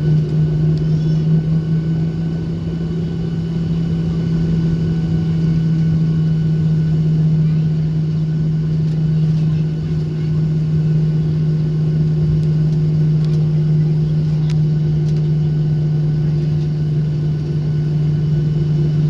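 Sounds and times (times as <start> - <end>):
airplane engines idling in cabin: 0.0 - 19.0
faint clicks: 14.2 - 15.3.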